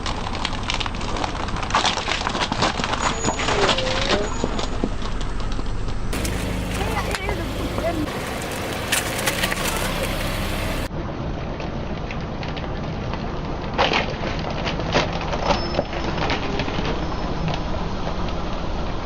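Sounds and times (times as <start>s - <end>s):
objects crunching under car tyre: 0.0s - 10.9s, 12.0s - 18.4s
car engine low hum: 4.5s - 10.9s.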